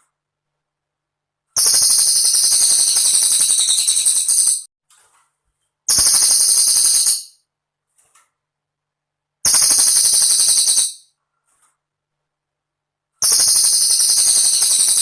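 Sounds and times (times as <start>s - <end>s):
bird rattling trills: 1.6s - 4.6s, 5.9s - 7.4s, 9.5s - 11.0s, 13.2s - 15.0s.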